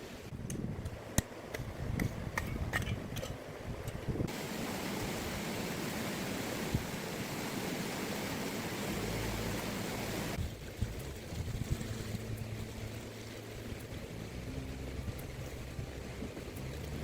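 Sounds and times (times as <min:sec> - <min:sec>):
steady rushing hiss: 0:04.1 - 0:17.0.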